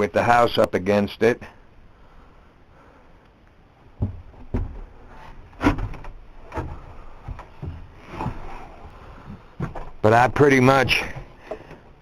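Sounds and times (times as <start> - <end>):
irregular knocks and thumps: 3.9 - 12.0.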